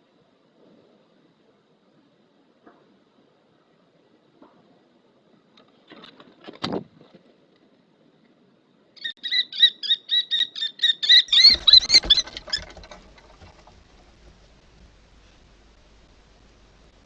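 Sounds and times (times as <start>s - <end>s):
kestrel shrill alarm call: 9.0s - 12.4s.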